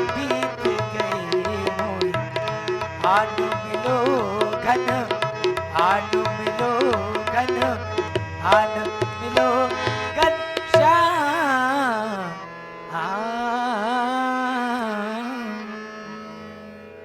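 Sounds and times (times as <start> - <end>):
tabla strokes: 0.0 - 11.2.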